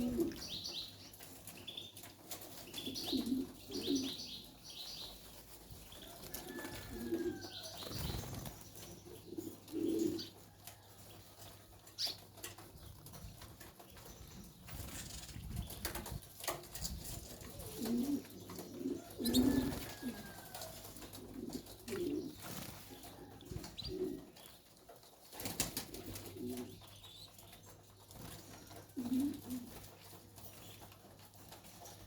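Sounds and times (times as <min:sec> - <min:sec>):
birds cooing: 0:00.0 - 0:13.1, 0:17.2 - 0:24.6, 0:25.6 - 0:27.6, 0:28.3 - 0:30.9
clicks and rattles in cages: 0:10.4 - 0:23.4.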